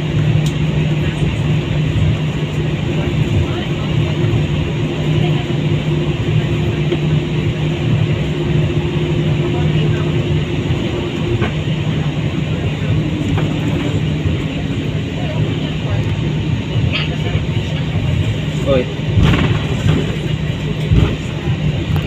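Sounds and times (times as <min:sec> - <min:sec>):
airliner cabin noise: 0:00.0 - 0:22.0.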